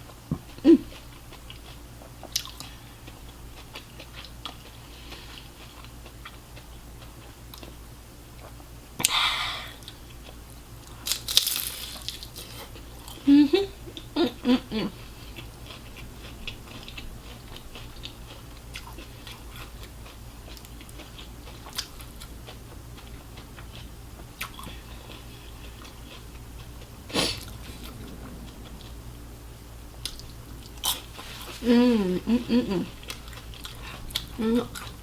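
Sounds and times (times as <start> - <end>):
chewing and biting: 0.4 - 7.8, 15.0 - 28.8, 33.0 - 35.0.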